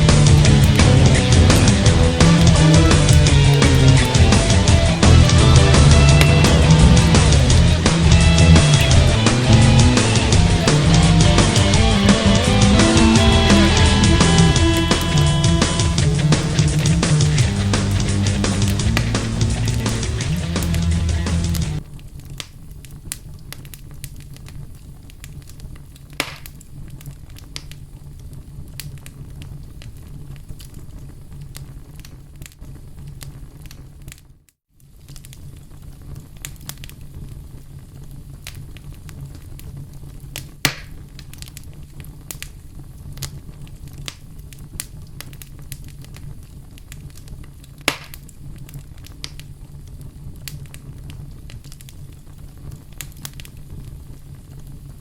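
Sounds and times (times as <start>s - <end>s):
low rumble: 0.0s - 21.8s
campfire crackling: 0.0s - 34.2s, 34.8s - 55.0s
fire pops: 0.0s - 55.0s.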